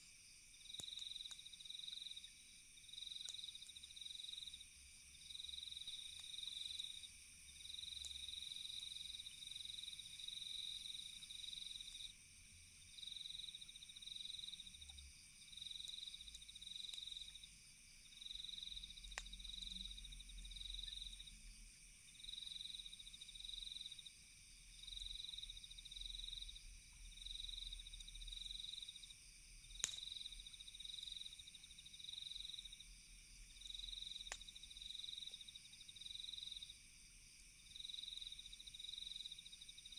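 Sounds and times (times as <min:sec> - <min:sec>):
crickets chirping: 0:00.0 - 0:39.9
campfire crackling and popping: 0:00.6 - 0:02.1, 0:03.0 - 0:04.5, 0:05.8 - 0:07.0, 0:18.6 - 0:19.4, 0:29.6 - 0:32.7, 0:33.5 - 0:35.5
high-pitched insect trill: 0:15.5 - 0:36.8.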